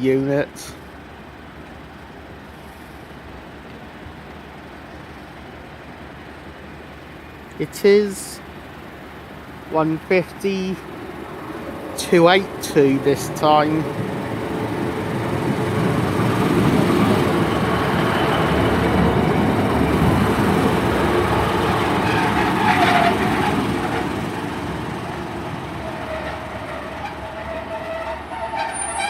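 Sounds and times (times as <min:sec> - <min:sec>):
diesel train rumbling: 0:00.0 - 0:29.0
train brake squeal: 0:26.0 - 0:29.0.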